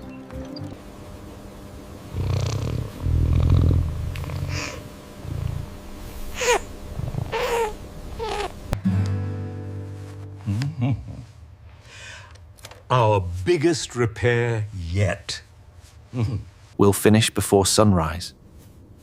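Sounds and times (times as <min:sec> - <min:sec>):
kitten purring: 0:02.1 - 0:05.7, 0:06.9 - 0:08.6.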